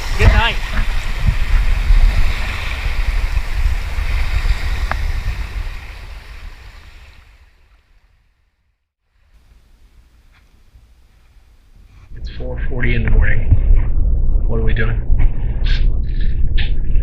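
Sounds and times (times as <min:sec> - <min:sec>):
wind on microphone: 0:00.0 - 0:08.0, 0:10.6 - 0:17.0
sea around a boat: 0:00.0 - 0:12.2.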